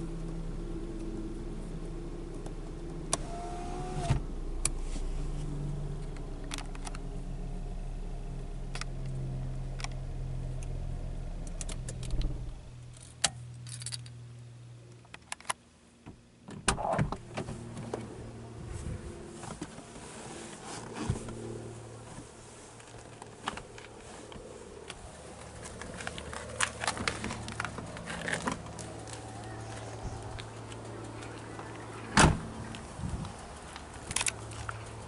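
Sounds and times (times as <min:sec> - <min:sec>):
car engine idling: 0:00.0 - 0:13.6, 0:16.8 - 0:35.0.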